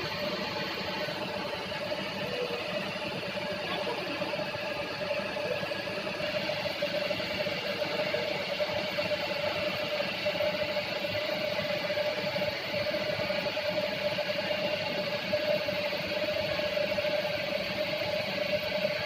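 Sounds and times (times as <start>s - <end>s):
milling machine hum: 0.0s - 19.0s.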